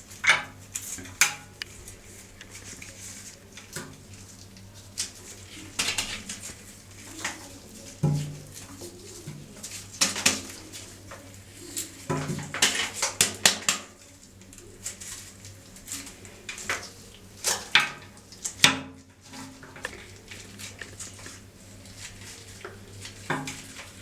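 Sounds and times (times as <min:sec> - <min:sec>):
horn being handled and cleaned: 0:00.0 - 0:24.0.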